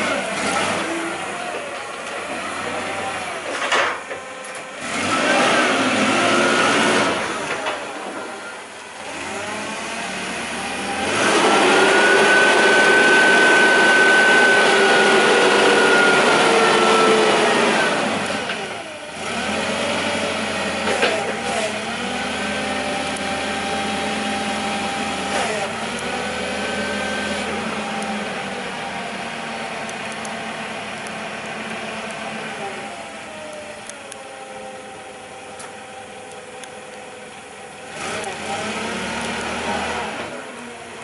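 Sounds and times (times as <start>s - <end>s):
forklift engine revving: 0.0s - 41.0s.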